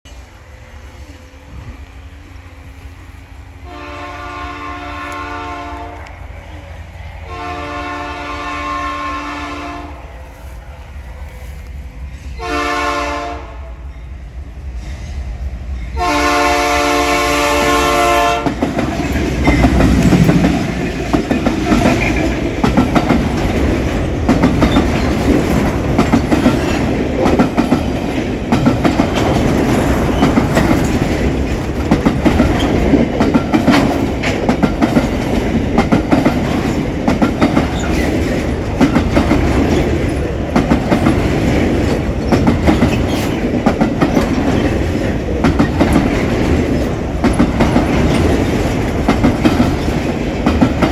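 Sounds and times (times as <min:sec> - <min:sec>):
locomotive air horn: 0:03.6 - 0:06.1, 0:07.3 - 0:10.2, 0:12.3 - 0:13.8, 0:16.0 - 0:18.6
train wheels clicking over rail joints: 0:14.0 - 0:50.9.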